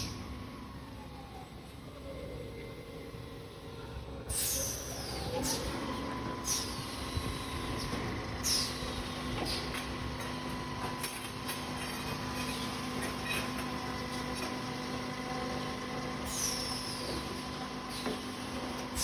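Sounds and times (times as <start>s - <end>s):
machine humming: 4.9s - 19.0s.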